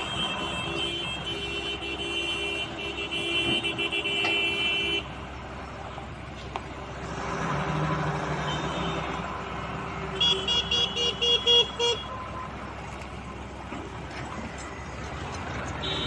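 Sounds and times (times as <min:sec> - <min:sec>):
engine running: 0:05.0 - 0:16.0.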